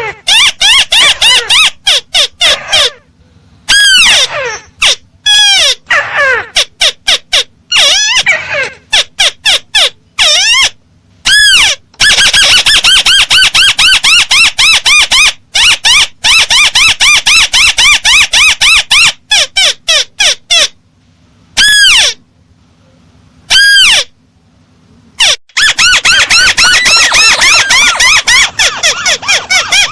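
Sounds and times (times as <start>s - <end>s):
bird lure call: 25.2s - 29.9s.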